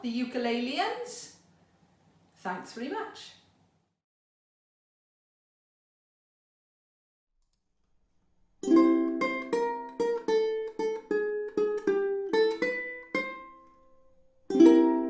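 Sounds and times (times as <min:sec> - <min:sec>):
ukulele playing: 0:08.6 - 0:15.0.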